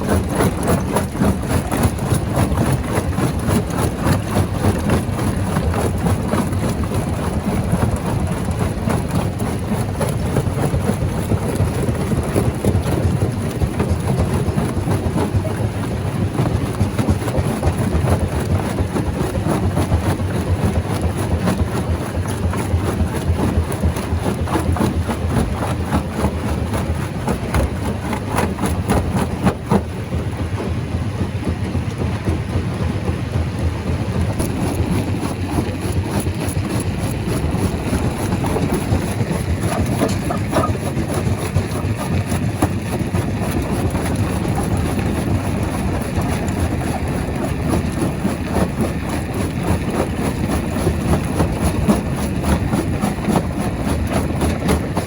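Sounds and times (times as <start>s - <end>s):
rock crusher rumbling: 0.0s - 55.0s.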